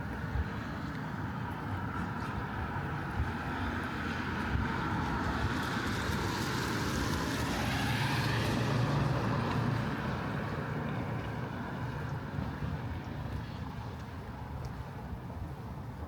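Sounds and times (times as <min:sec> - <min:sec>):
car tyres hissing on wet street: 0:01.9 - 0:13.9.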